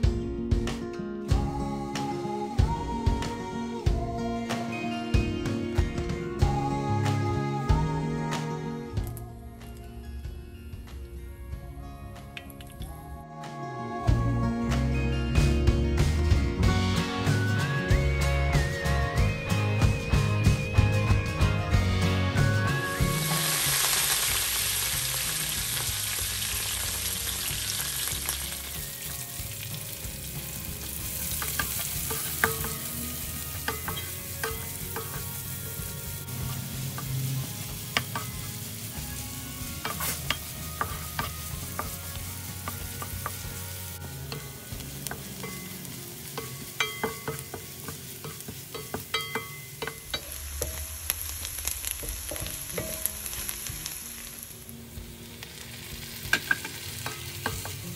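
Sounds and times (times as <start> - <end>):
oil sizzling in a wok: 15.4 - 57.9
wooden spatula scraping and tapping pan: 39.8 - 43.4.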